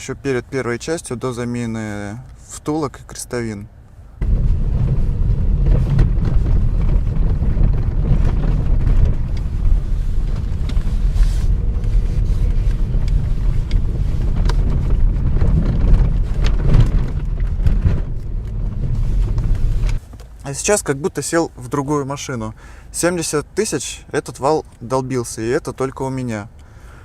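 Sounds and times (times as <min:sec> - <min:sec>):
low road rumble: 0:00.0 - 0:27.0
knocks and rattles: 0:04.2 - 0:20.3.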